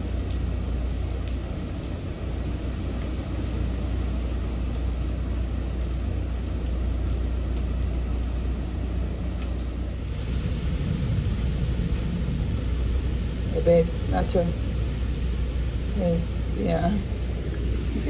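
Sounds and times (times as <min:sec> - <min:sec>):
hurricane wind roaring: 0:00.0 - 0:18.0.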